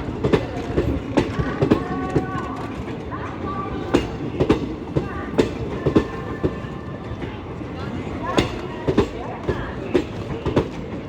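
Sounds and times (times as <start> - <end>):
train wheel clacks: 0.0 - 7.4, 8.1 - 11.0
train coaches rumbling: 0.0 - 11.0.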